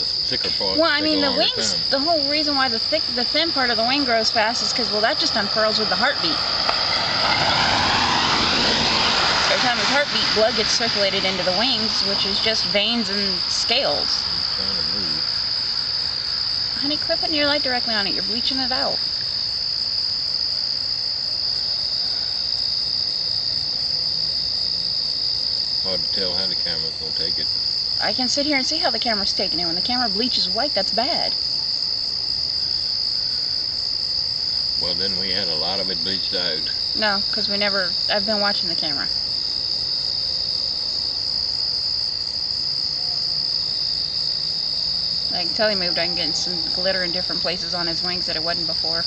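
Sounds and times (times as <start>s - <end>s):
night insects trilling: 0.0s - 49.0s.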